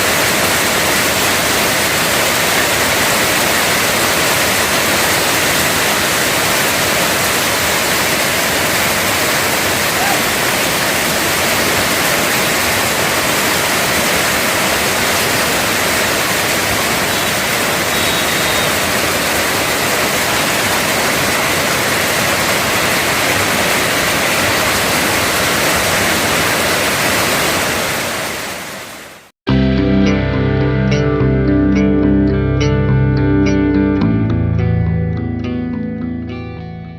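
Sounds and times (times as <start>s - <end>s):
heavy rain pouring: 0.0s - 29.3s.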